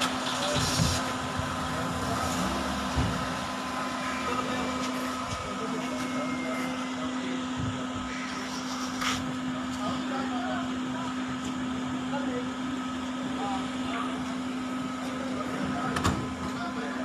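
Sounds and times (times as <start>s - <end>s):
indistinct voices: 0.0s - 12.5s
car engine idling: 0.0s - 17.0s.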